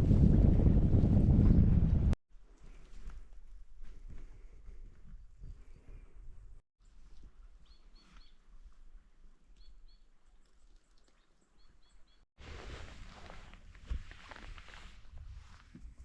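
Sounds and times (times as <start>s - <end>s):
low rumble: 0.0s - 2.2s
bird chirping: 6.8s - 8.4s, 9.6s - 12.2s.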